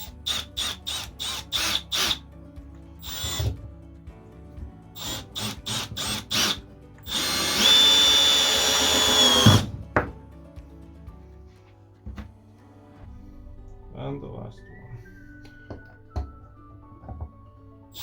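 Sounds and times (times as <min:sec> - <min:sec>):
cordless drill whining: 0:00.0 - 0:02.2, 0:03.0 - 0:03.6, 0:05.0 - 0:09.7
drill trigger blips: 0:03.0 - 0:03.6, 0:05.0 - 0:09.7.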